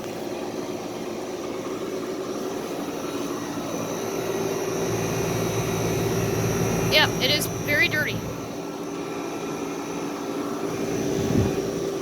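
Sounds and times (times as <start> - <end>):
air conditioner unit humming: 0.0 - 12.0
deeper hum: 2.6 - 9.6, 10.7 - 12.0.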